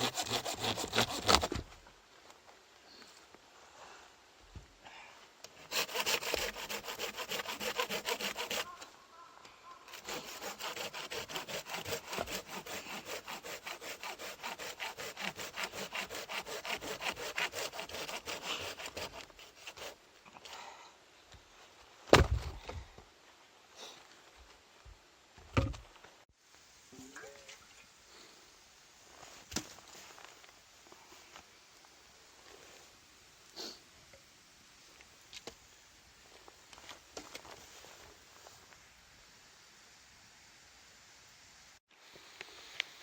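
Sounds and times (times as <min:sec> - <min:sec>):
hand saw cutting wood: 0:00.0 - 0:01.6, 0:05.5 - 0:08.8, 0:09.9 - 0:20.0.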